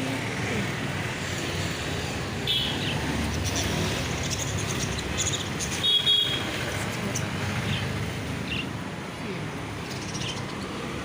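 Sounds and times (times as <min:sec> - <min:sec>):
road traffic rumble: 0:00.0 - 0:11.0
birds chirping: 0:02.4 - 0:08.8, 0:09.7 - 0:11.0.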